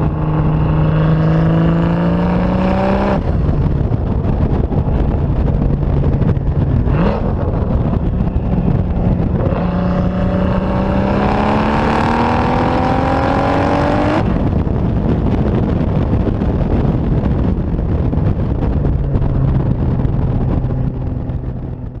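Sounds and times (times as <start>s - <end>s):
loud car engine revving: 0.0s - 3.9s, 5.0s - 14.6s.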